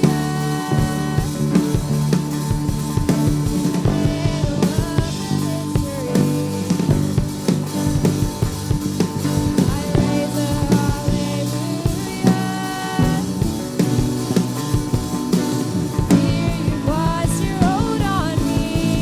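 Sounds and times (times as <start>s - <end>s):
drum kit hits: 0.0s - 19.0s
rock band playing: 0.0s - 19.0s.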